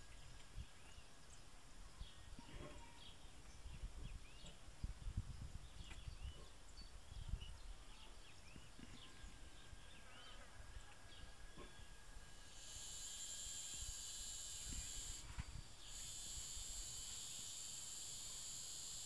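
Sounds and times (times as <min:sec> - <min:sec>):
small birds chirping: 0:00.0 - 0:12.0
thin steady high tone: 0:12.0 - 0:19.0.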